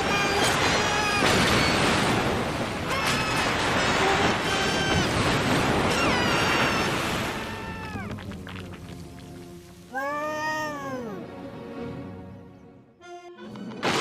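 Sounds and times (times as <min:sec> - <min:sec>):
high pitched cries: 0:02.8 - 0:08.2.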